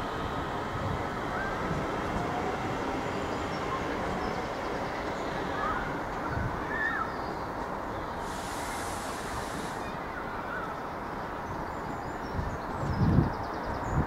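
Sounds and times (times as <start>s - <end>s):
electric train rumbling: 0.0s - 14.0s
urban background noise: 0.0s - 14.0s
brief hiss: 8.2s - 10.0s.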